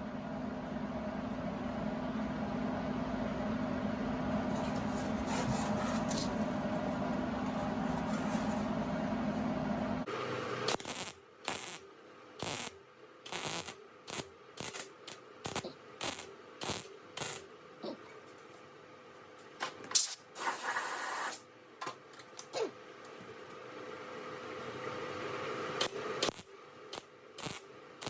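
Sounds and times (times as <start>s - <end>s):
welding arc bursts: 10.7s - 11.8s, 12.4s - 12.7s, 13.3s - 17.4s, 20.0s - 21.4s, 25.8s - 27.6s.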